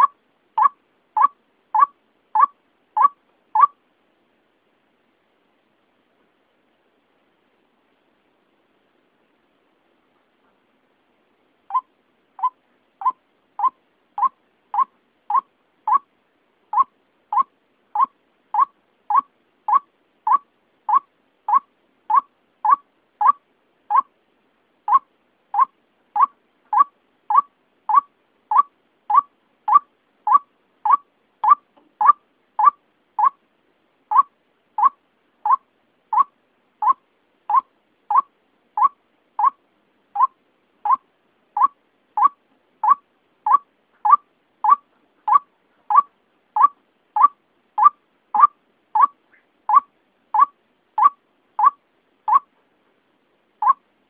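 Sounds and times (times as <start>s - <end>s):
waterhen call repeated: 0.0s - 3.8s, 11.7s - 16.1s, 16.8s - 24.1s, 24.9s - 33.4s, 34.1s - 39.6s, 40.2s - 41.0s, 41.6s - 52.5s, 53.6s - 53.8s.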